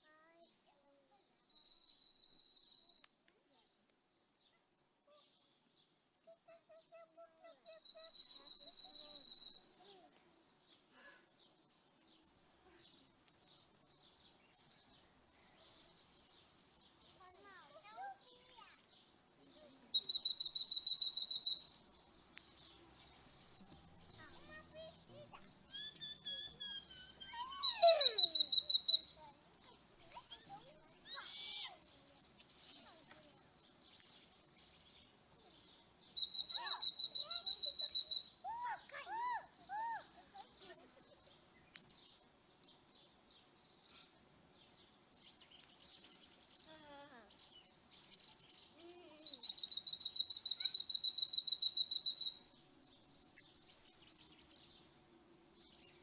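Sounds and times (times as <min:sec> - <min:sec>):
bird chirps: 0:00.3 - 0:03.7, 0:04.4 - 0:10.8, 0:12.1 - 0:54.9
high-pitched bird trill: 0:07.7 - 0:09.6, 0:20.0 - 0:21.7, 0:25.7 - 0:29.2, 0:36.2 - 0:38.6, 0:49.2 - 0:52.4
falling bird whistles: 0:20.0 - 0:21.7, 0:25.7 - 0:29.2, 0:36.2 - 0:38.3, 0:49.3 - 0:52.4.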